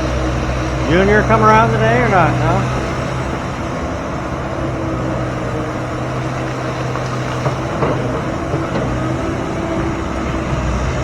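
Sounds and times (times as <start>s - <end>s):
engine running: 0.0s - 11.0s
short knocks: 6.4s - 10.0s.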